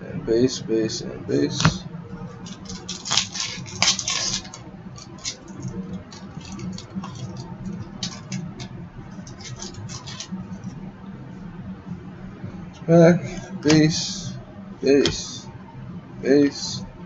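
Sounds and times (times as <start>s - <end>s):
low hum: 0.0s - 17.0s
cards and wrappers rustling: 2.4s - 10.3s.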